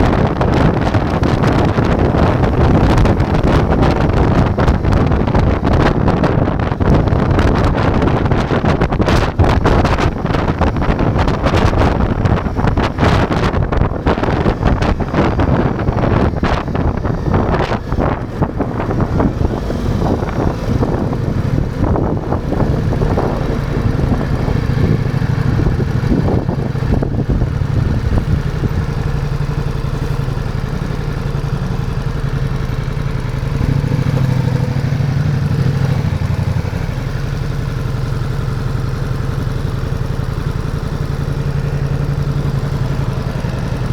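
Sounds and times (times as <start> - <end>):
motorcycle engine running: 0.0 - 43.9
wind buffeting microphone: 0.0 - 43.9.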